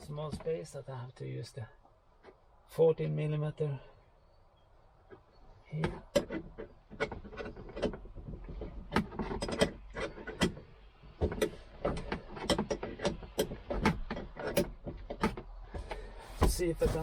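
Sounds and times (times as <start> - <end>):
rustling handling noise: 15.0 - 17.0.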